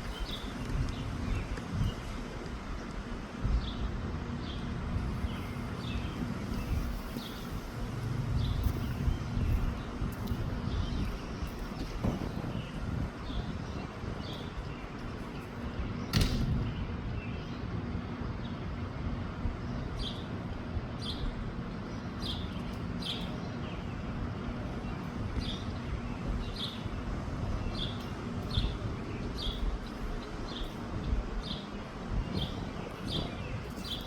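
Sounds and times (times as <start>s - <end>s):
wind rumbling on microphone: 0.0s - 34.0s
sharp knock: 16.1s - 16.6s.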